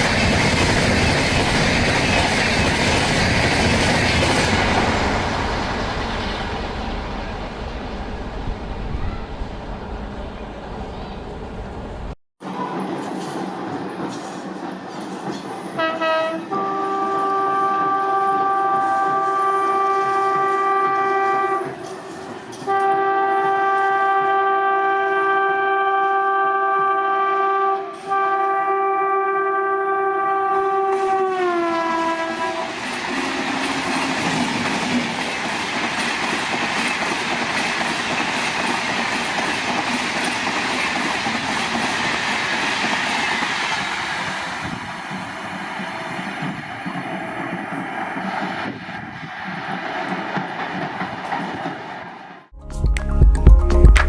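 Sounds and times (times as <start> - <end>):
train wheel and rail rush: 0.0 - 52.6
diesel locomotive horn blasts: 15.8 - 22.0, 22.6 - 34.0.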